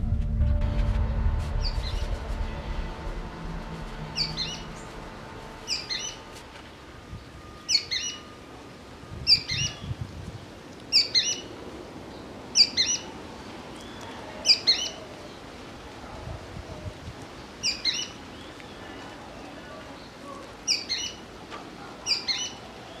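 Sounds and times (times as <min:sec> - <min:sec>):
songbird chirped call: 0:03.1 - 0:13.1, 0:17.4 - 0:19.0, 0:19.8 - 0:21.3, 0:22.0 - 0:23.0.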